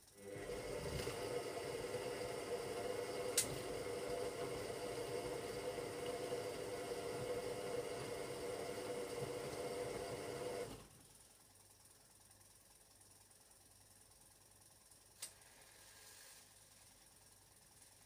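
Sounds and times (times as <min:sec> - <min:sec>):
washing machine motor whine: 0:00.1 - 0:11.1.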